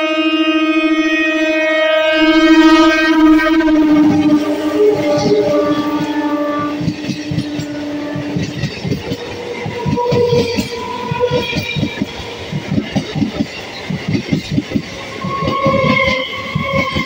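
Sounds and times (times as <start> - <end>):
train wheels clattering over rail joints: 5.2 - 17.0.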